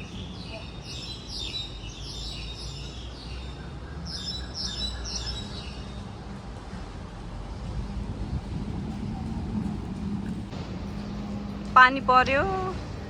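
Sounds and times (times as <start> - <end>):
bird chirping: 0.0 - 6.1
low steady rumble: 6.2 - 13.0.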